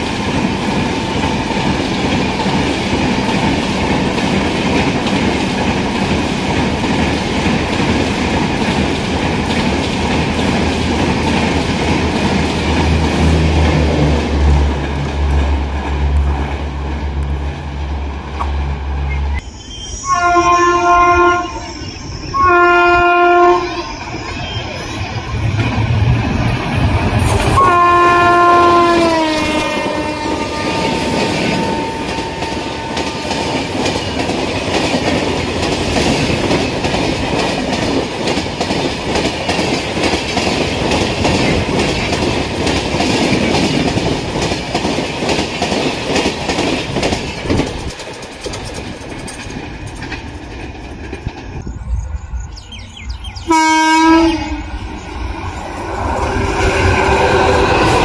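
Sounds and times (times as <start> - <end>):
train wheels clattering on rails: 0.0 - 19.4, 25.0 - 51.7
approaching train rushing: 0.0 - 58.0
train horn: 20.0 - 24.0, 27.5 - 33.8, 53.5 - 54.9.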